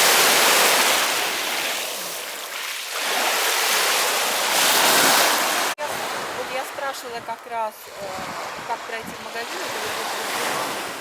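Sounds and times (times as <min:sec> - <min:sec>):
small waves washing on shore: 0:00.0 - 0:11.0.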